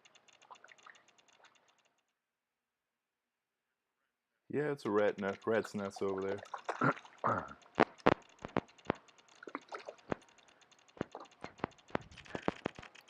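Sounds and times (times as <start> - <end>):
sharp clicks and light knocks: 0.0 - 2.1, 4.9 - 13.0.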